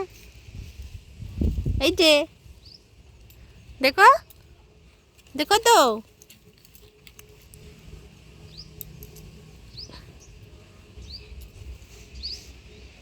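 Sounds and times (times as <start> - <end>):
small bird chirping: 2.4 - 4.4, 8.4 - 13.0.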